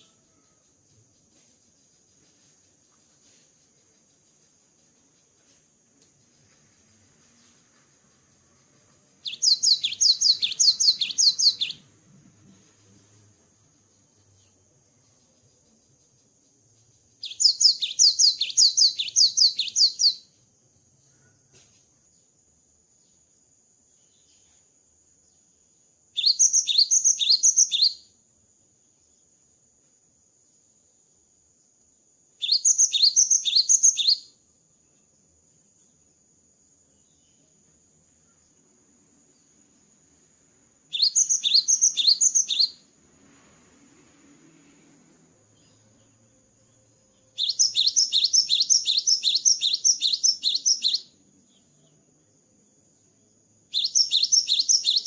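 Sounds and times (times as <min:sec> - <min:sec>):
faint high-pitched whine: 0:00.0 - 0:55.0
bird singing whistled notes: 0:08.0 - 0:11.9, 0:13.8 - 0:20.4, 0:26.1 - 0:28.2, 0:32.4 - 0:34.4, 0:40.8 - 0:43.0, 0:45.5 - 0:52.0, 0:53.7 - 0:55.0.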